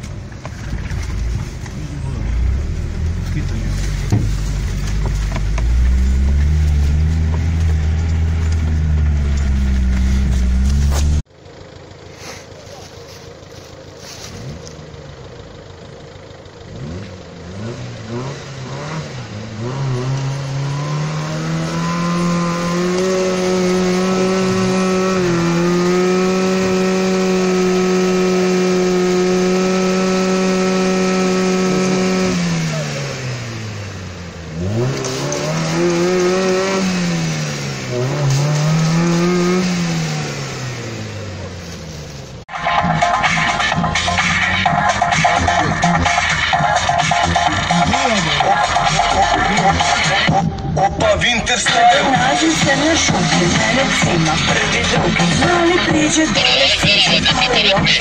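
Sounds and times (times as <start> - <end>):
suv engine revving in mud: 0.8 - 11.3, 13.9 - 58.0.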